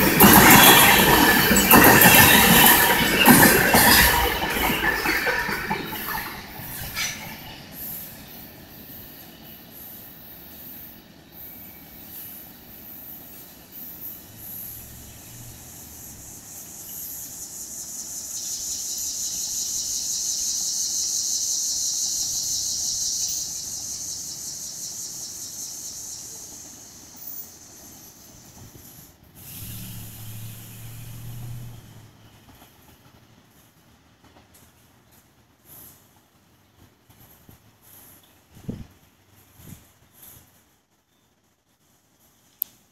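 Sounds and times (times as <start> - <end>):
freight train rumbling past: 0.0 - 40.1
steady high hiss: 5.4 - 33.9.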